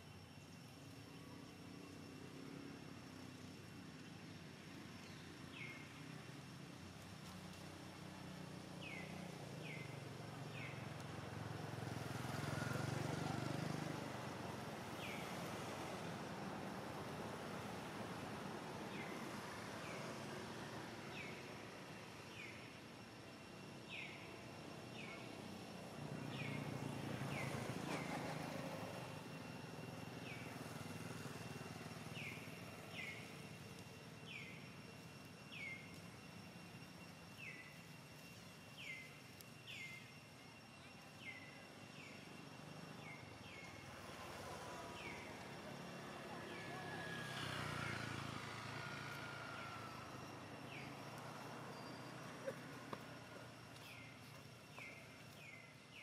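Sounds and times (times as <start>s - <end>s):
outdoor background noise: 0.0s - 56.0s.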